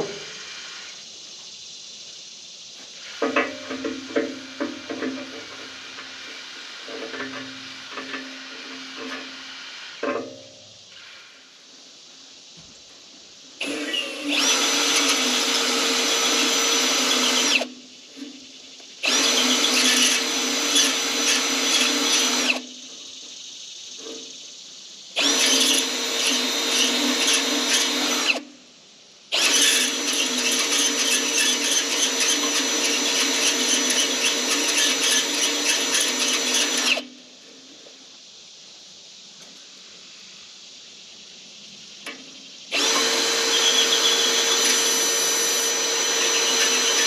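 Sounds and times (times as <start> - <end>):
power drill whining: 13.6 - 17.7, 19.0 - 22.6, 25.2 - 28.4, 29.3 - 37.1, 42.7 - 47.0.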